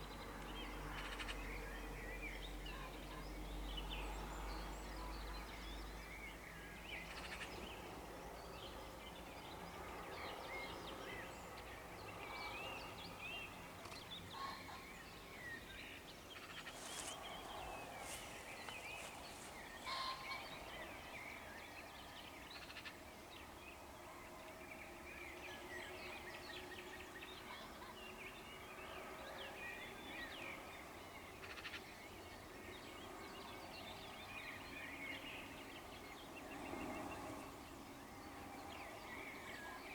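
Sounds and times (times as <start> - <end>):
songbirds singing and trilling: 0.0 - 39.9
pheasant crowing: 18.0 - 20.6.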